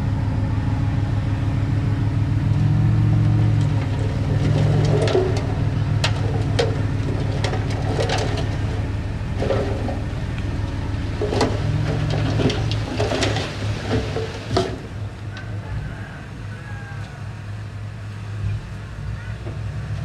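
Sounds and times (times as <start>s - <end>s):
diesel engine running: 0.0s - 20.0s
sharp knocks and clanks: 3.6s - 15.0s.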